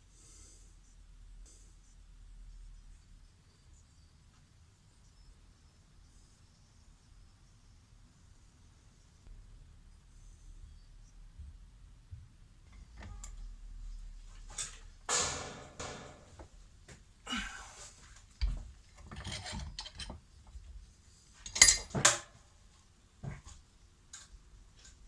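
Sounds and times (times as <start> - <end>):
metal tools clinking and scraping: 14.5 - 16.4, 18.4 - 20.3, 21.4 - 22.4.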